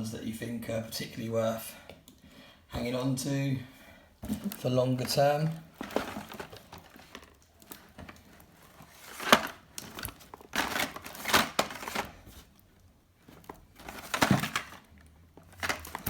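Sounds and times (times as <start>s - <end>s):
packaging crinkling and rustling: 4.2s - 16.0s.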